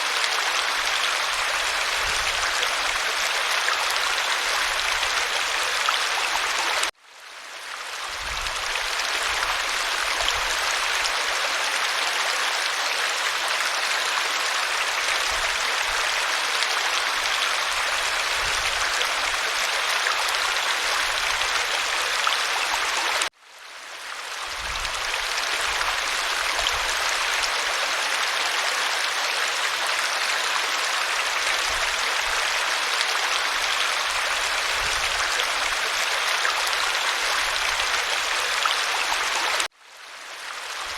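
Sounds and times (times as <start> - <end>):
waterfall rushing: 25.2 - 39.7.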